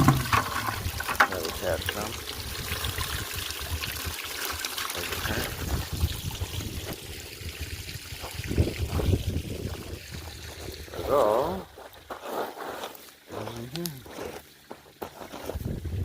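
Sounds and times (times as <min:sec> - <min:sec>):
water pouring into a bucket: 0:00.0 - 0:14.7.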